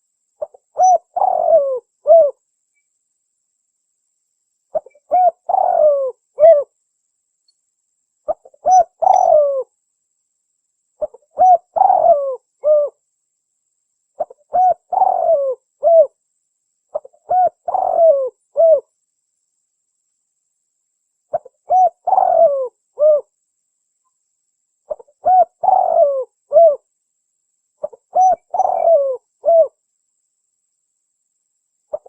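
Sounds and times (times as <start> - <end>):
dove cooing: 0.4 - 2.4, 4.7 - 6.7, 8.3 - 9.7, 11.0 - 13.0, 14.2 - 16.2, 16.9 - 18.9, 21.3 - 23.3, 24.9 - 26.8, 27.8 - 29.8.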